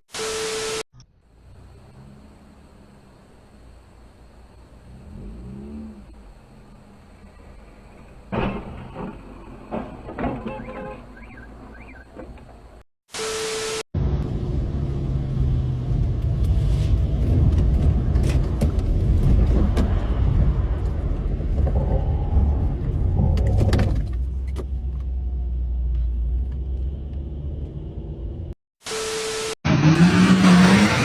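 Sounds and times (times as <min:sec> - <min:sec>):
engine running low rumble: 0:01.2 - 0:10.3, 0:14.0 - 0:28.6.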